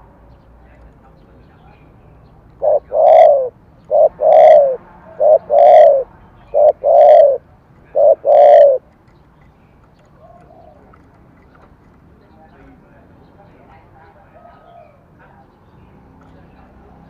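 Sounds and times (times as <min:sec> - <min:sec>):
dove cooing: 0:02.6 - 0:08.9, 0:10.2 - 0:11.1.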